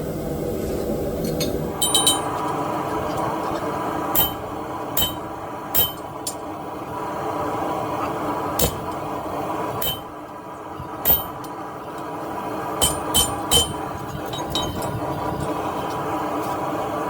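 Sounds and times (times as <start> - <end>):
steady background hum: 0.0 - 17.0
hammer striking steel anvil: 1.4 - 2.4, 4.2 - 6.4, 8.6 - 8.9, 9.8 - 10.2, 11.0 - 11.6, 12.8 - 13.9.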